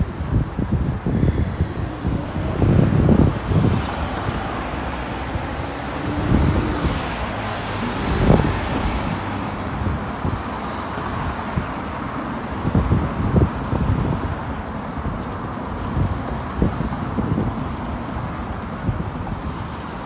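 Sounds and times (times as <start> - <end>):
road traffic passing: 0.0 - 20.0
wind bumping microphone: 0.0 - 20.0.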